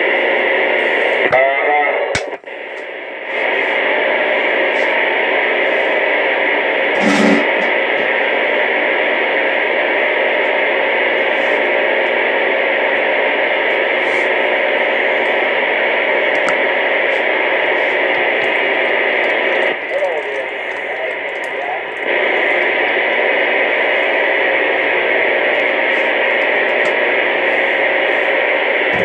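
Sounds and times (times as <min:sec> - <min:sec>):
radio static hiss: 0:00.0 - 0:29.0
short radio blip: 0:06.9 - 0:08.1.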